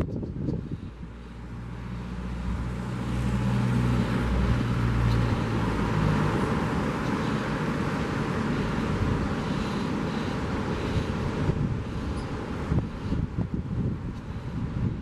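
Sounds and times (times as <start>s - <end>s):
vehicle engine hum passing: 0.0s - 15.0s
wind: 0.0s - 15.0s.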